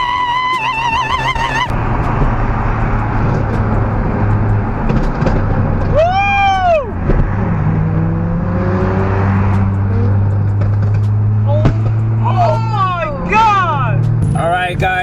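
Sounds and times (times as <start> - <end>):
high cry rising and falling: 0.0 - 1.8
car engine drone: 0.0 - 15.0
road noise: 0.0 - 15.0.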